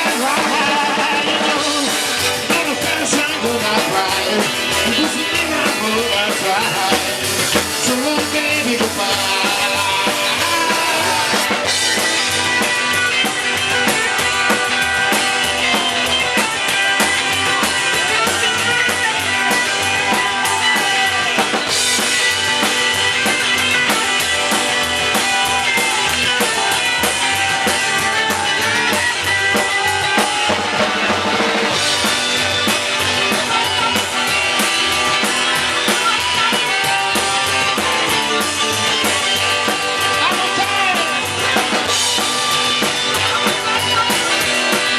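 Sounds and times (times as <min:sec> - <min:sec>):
drum kit beat: 0:00.0 - 0:44.9
electric guitar: 0:00.0 - 0:44.9
harmonica bending notes: 0:09.4 - 0:44.9.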